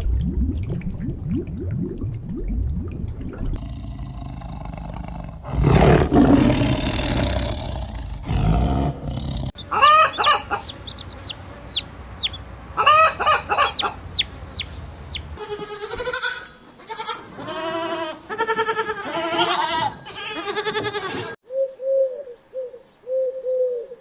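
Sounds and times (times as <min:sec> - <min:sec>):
big cat roaring: 0:03.6 - 0:09.6
high falling chirps: 0:09.6 - 0:15.4
goat bleating: 0:15.4 - 0:21.4.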